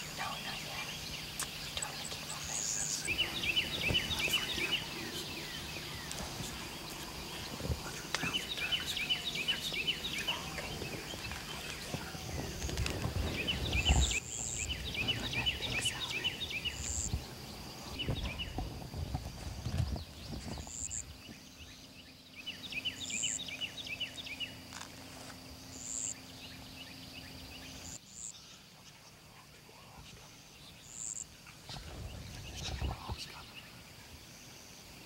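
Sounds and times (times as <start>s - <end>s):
bird chirps: 0.0s - 18.7s, 19.6s - 24.8s.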